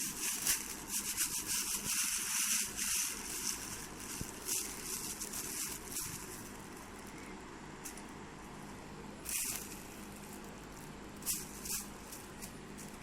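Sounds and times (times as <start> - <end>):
plastic crinkling and rustling: 0.0 - 7.3, 9.3 - 13.0.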